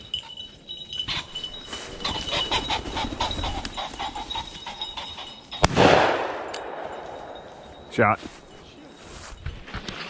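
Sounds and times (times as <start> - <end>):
dog panting: 1.1 - 5.6.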